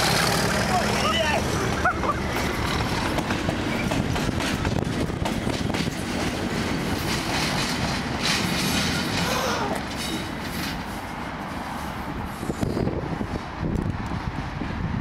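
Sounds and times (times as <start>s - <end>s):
wheels clattering over rail joints: 0.0s - 11.1s
locomotive engine running: 0.0s - 12.6s.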